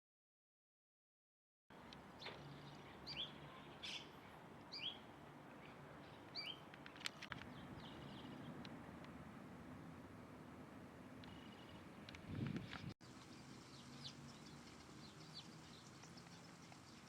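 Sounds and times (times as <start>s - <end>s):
small bird calling: 2.2s - 6.7s, 11.2s - 17.0s
bird chips: 11.3s - 17.0s.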